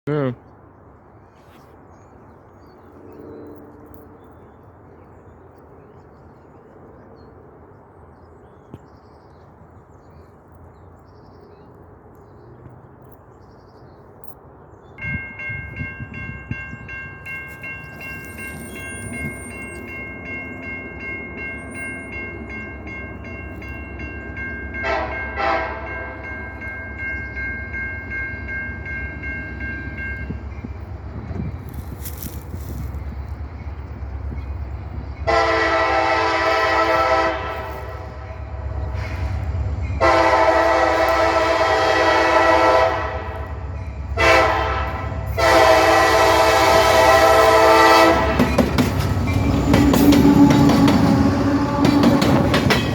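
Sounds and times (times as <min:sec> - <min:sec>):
train air horn chord: 0:24.8 - 0:26.2, 0:35.2 - 0:43.5, 0:44.2 - 0:48.4.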